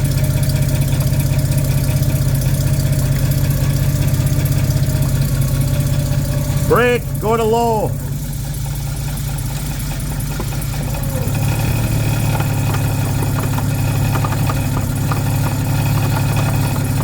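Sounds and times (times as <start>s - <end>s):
car engine idling hum: 0.0s - 17.0s.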